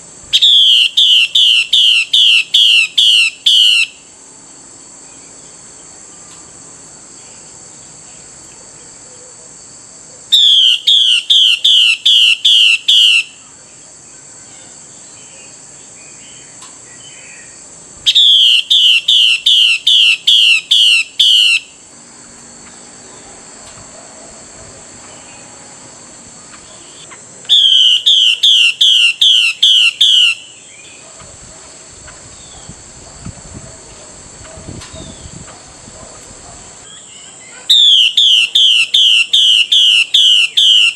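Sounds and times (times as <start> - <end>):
bird calling with falling notes: 0.4 - 4.0, 10.4 - 13.4, 16.4 - 21.8, 26.5 - 31.0, 36.8 - 40.9.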